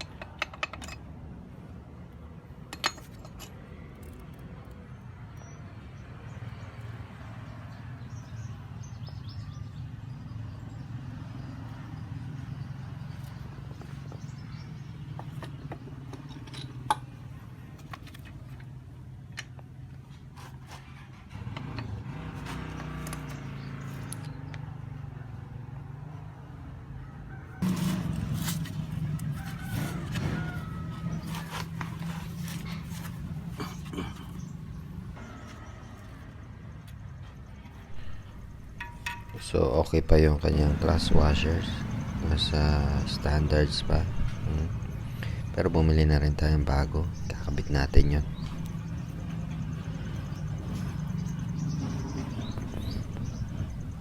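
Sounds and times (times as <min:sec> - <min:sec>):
low motor hum: 0:27.6 - 0:39.5, 0:40.3 - 0:54.0.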